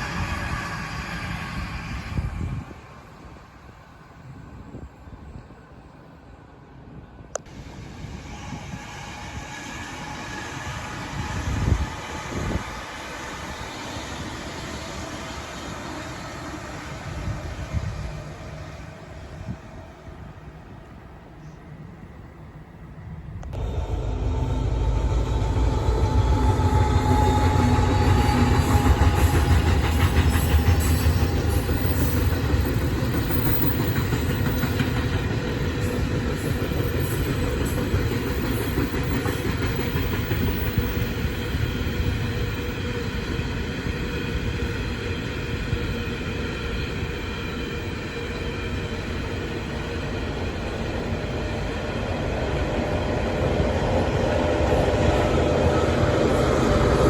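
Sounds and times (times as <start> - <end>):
train passing rumble: 0.0 - 57.0
whining tones sliding in pitch: 23.6 - 32.0.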